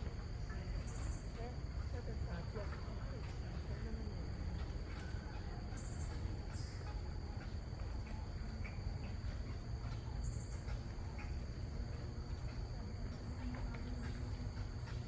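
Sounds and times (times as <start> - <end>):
insects trilling: 0.0 - 15.0
low wind rumble: 0.0 - 15.0
faint bird chirps: 4.8 - 14.4.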